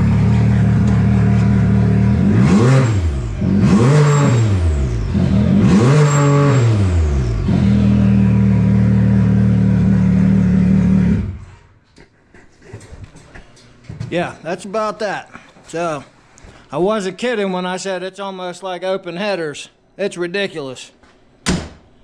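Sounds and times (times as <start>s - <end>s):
loud engine idling and revving: 0.0s - 11.6s.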